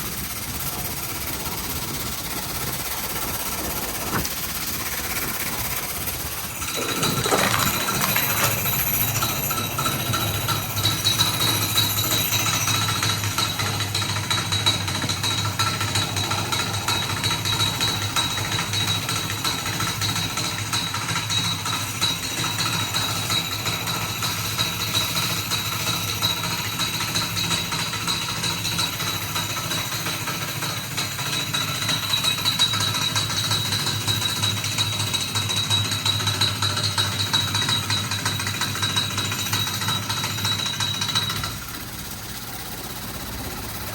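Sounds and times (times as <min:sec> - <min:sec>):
pressure washer spraying water: 0:00.0 - 0:17.2
pump humming: 0:00.0 - 0:27.4.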